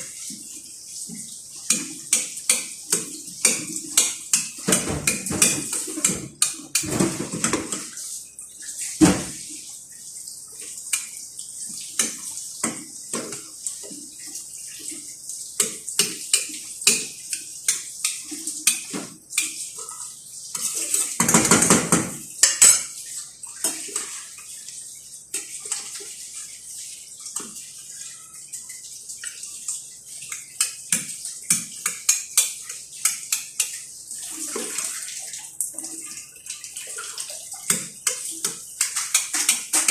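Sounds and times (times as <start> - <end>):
dishes and pots clinking: 1.7 - 7.9, 20.6 - 23.0, 37.7 - 39.9.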